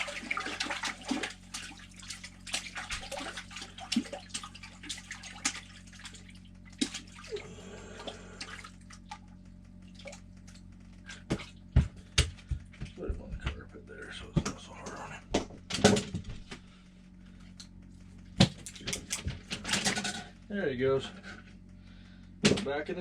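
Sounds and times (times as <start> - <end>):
water dripping: 0.0 - 7.4
fish thrashing and splashing: 0.0 - 11.6
steady low hum: 0.0 - 23.0.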